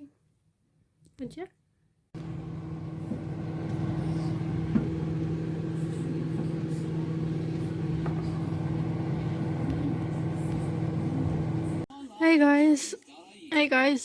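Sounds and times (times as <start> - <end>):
small motor humming: 2.2 - 11.8.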